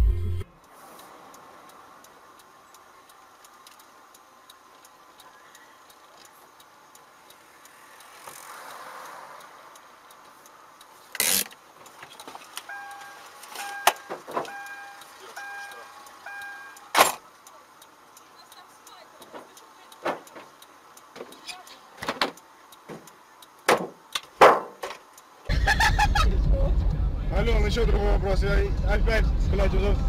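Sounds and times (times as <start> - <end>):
electronic beeping tone: 0.0 - 0.5, 12.7 - 16.8
faint regular ticking: 0.6 - 25.5
sharp clicks: 1.7 - 25.4
car interior noise: 8.3 - 30.0.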